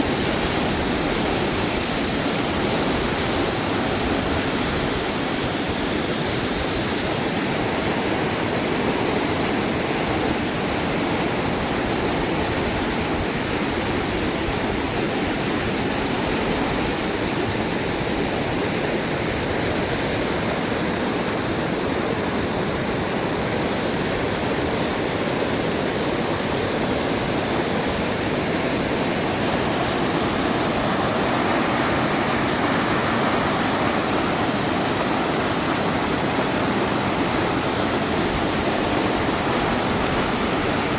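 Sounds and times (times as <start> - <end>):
river water rushing: 0.0 - 40.9.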